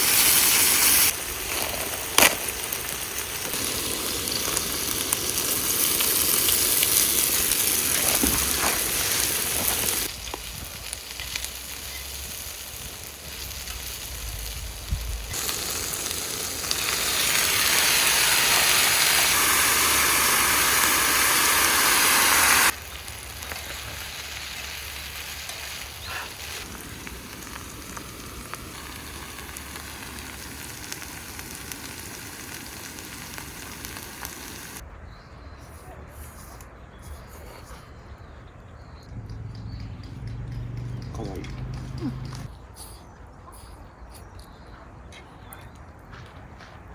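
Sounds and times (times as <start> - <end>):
food sizzling in a frying pan: 0.0 - 34.8.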